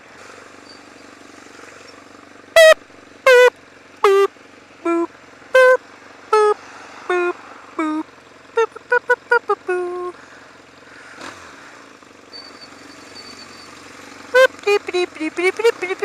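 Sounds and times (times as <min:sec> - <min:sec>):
motorcycle engine: 0:00.0 - 0:16.0
person singing boop notes: 0:03.3 - 0:10.2, 0:14.4 - 0:16.0.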